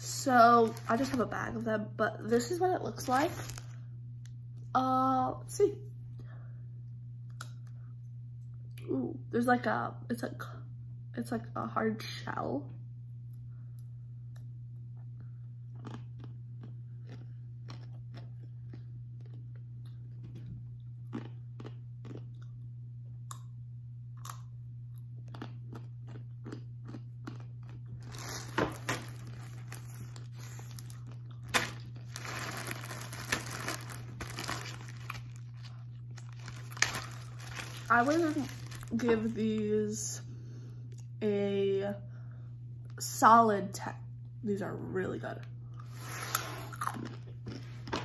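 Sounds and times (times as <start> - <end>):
steady low hum: 0.0 - 48.0
chewing crunchy peanuts: 14.3 - 39.3, 45.7 - 48.0.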